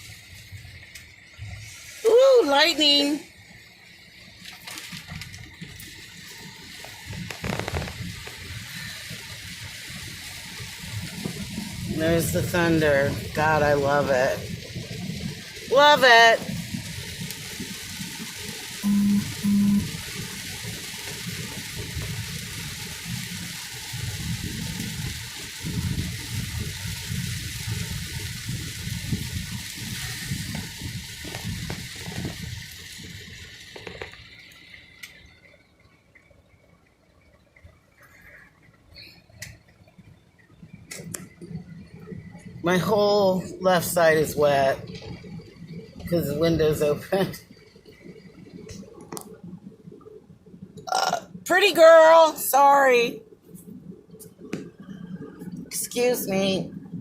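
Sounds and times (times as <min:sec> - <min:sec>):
heavy rain pouring on car: 0:00.0 - 0:57.0
rolling rumble of thunder: 0:05.6 - 0:34.1, 0:53.2 - 0:57.0.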